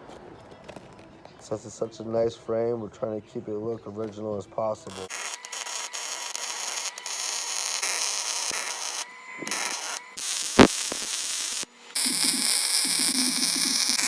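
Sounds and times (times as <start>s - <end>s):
welder crackling and hissing: 4.8s - 14.0s.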